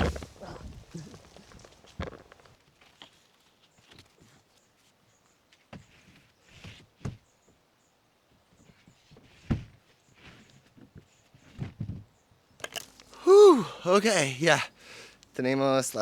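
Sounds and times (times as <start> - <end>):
rustles: 0.0 - 6.9.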